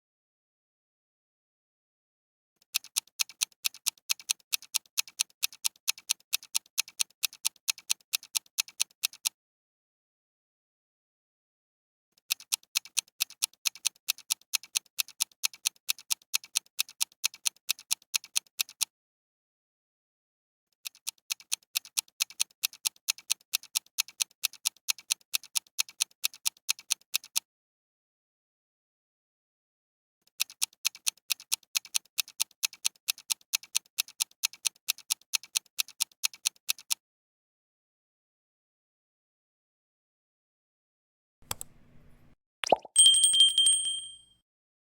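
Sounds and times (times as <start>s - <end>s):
clock ticking: 2.7s - 9.3s.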